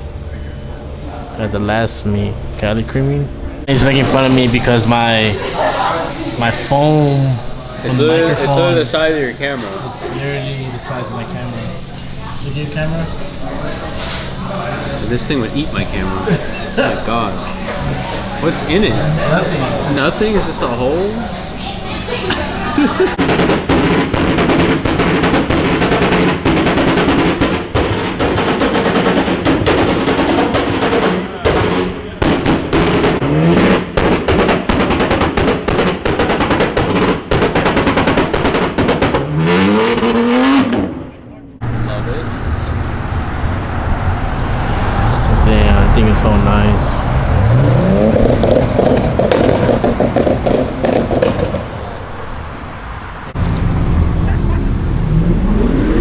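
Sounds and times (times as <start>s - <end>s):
engine running: 0.0s - 56.0s
car exhaust crackling and popping: 23.1s - 41.8s, 42.4s - 56.0s.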